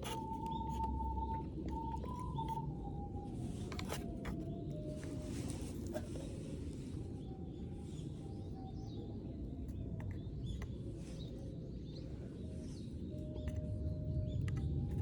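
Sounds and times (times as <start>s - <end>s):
birds chirping: 0.0s - 2.7s
faint pure tones: 0.0s - 15.0s.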